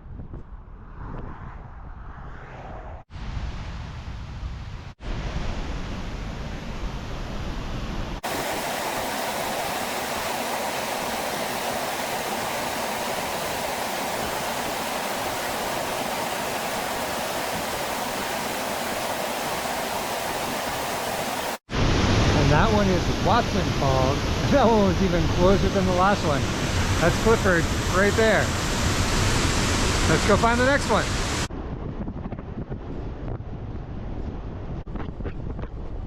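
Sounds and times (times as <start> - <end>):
waterfall rushing: 8.2 - 31.5.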